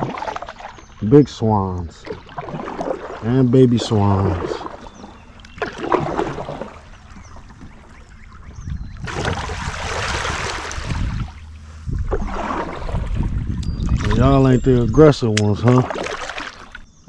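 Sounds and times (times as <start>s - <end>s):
paddle splashing water: 0.0s - 16.9s
low rumble: 8.3s - 15.2s.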